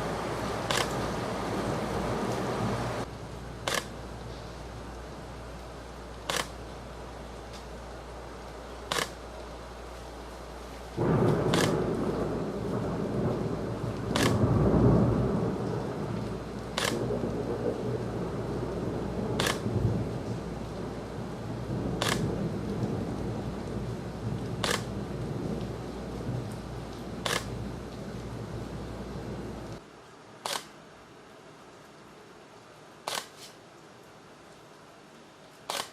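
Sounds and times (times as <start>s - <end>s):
thunder crack and rumble: 11.0s - 29.8s.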